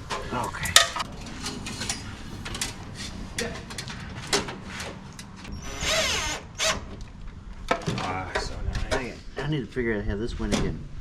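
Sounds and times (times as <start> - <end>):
low steady hum: 0.5 - 7.8.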